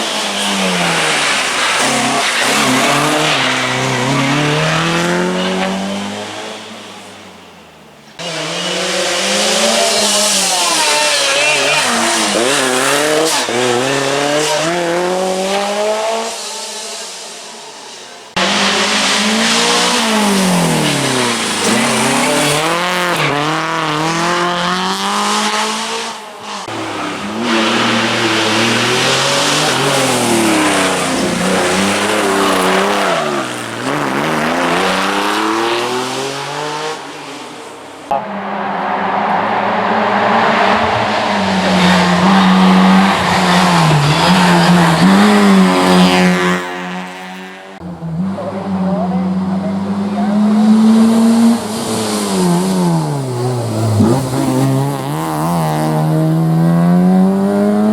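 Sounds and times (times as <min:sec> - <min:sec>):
rally car engines revving: 0:00.0 - 0:57.9.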